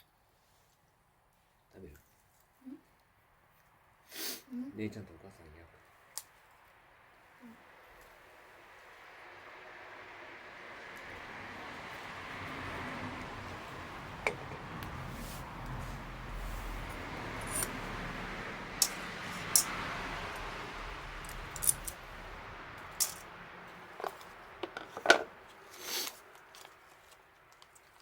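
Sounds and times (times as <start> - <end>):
steady rushing noise: 8.3 - 26.3
sharp clicks and clinks: 21.2 - 22.0, 22.9 - 23.2.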